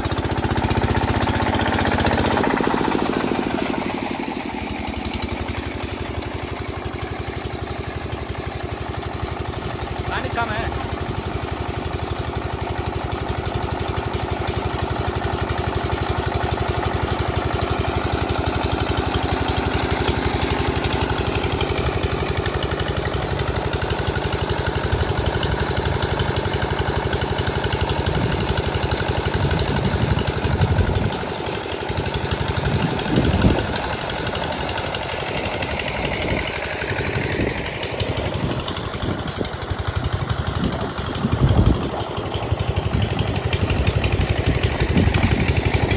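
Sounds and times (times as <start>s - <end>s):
diesel pump engine chugging: 0.0s - 45.9s.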